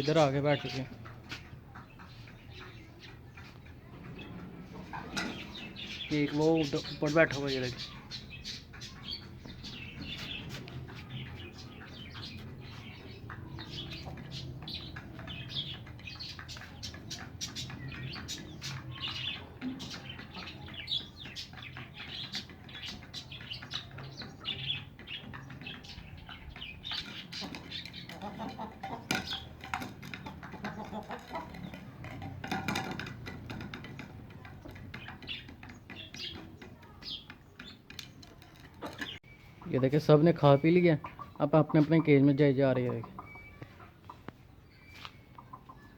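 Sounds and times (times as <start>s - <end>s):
flock of birds chirping: 0.0s - 45.9s
small clicks and knocks: 27.1s - 39.2s.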